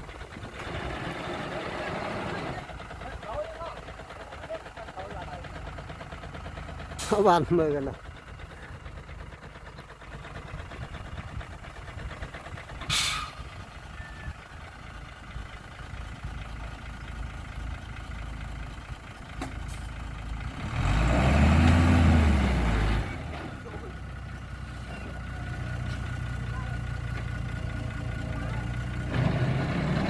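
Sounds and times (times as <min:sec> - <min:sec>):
heavy diesel engine running: 0:00.0 - 0:30.0
short air hiss: 0:12.9 - 0:13.4.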